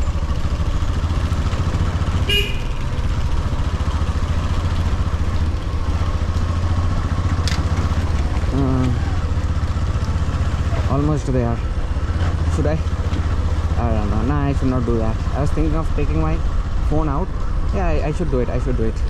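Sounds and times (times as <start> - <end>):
motorcycle engine running: 0.0 - 19.0
vehicle horn beep: 2.2 - 3.1.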